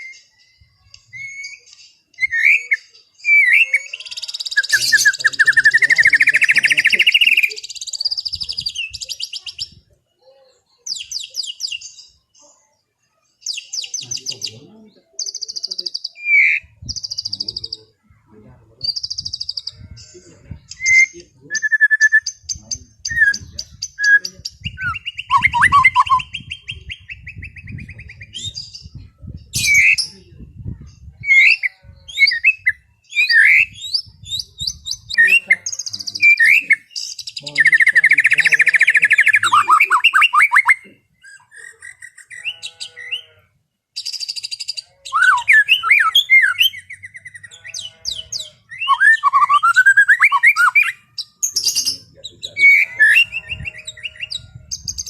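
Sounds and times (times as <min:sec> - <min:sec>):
songbird whistling and chirping: 0:00.0 - 0:09.8, 0:10.7 - 0:12.2, 0:13.4 - 0:14.6, 0:15.2 - 0:17.9, 0:20.7 - 0:30.2, 0:30.8 - 0:43.3, 0:44.0 - 0:55.0
bird fast trill: 0:01.2 - 0:09.8, 0:29.6 - 0:30.2, 0:31.3 - 0:43.4, 0:44.0 - 0:55.0.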